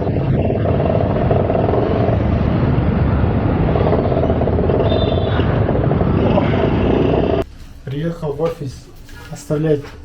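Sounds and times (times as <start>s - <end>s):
motorcycle riding steadily: 0.0s - 7.4s.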